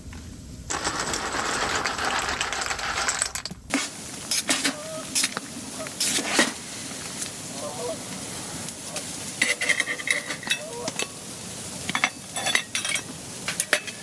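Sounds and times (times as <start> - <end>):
loud steady hiss: 0.0 - 14.0
metal cookware clinking: 9.4 - 11.1, 11.9 - 14.0.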